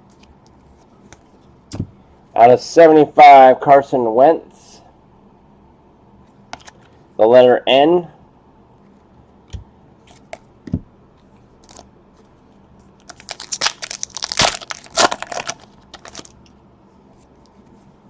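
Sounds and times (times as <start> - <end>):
foil wrapper tearing and crinkling: 13.1 - 16.4.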